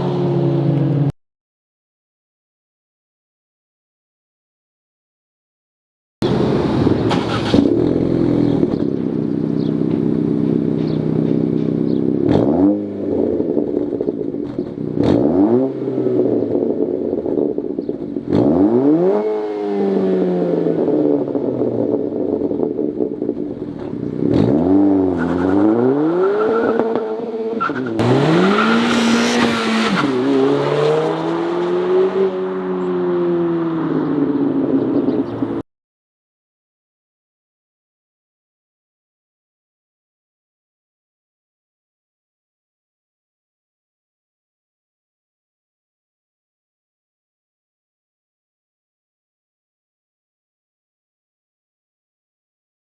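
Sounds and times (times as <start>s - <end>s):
car engine idling and revving: 0.0s - 1.2s, 6.2s - 35.6s.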